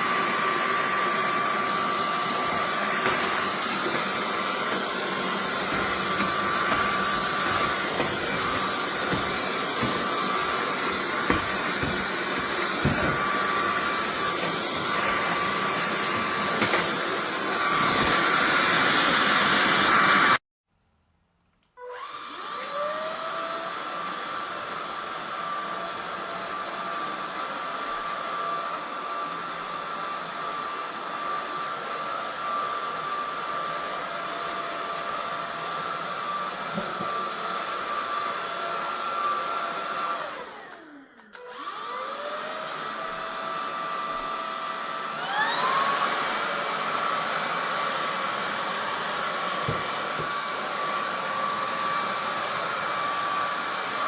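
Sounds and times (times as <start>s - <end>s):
stick vacuum whining: 0.0s - 20.4s, 21.7s - 54.0s
vacuum head knocking floor: 2.5s - 17.1s, 36.7s - 37.3s, 49.6s - 50.4s.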